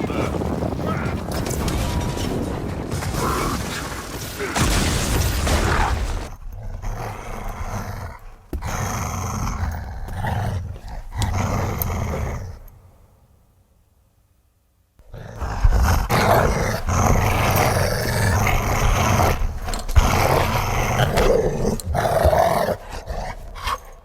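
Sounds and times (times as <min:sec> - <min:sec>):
dogs growling in play: 0:06.3 - 0:12.8, 0:15.0 - 0:24.0.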